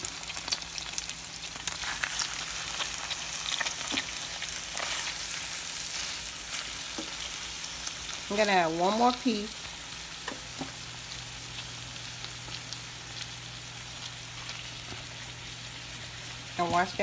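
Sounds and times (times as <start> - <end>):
chicken sizzling in butter: 0.0 - 17.0.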